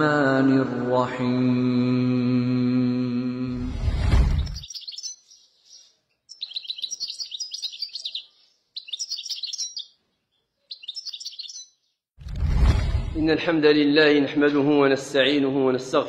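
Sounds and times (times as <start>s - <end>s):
small birds twittering: 4.4s - 12.0s.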